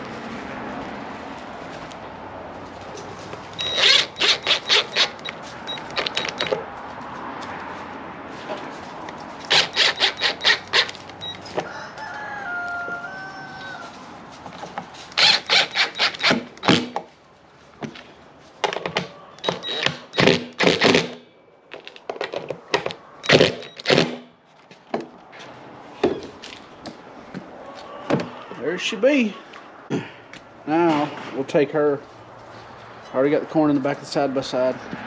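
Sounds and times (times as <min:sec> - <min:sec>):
rooster crowing: 0:11.5 - 0:14.0, 0:27.6 - 0:28.6.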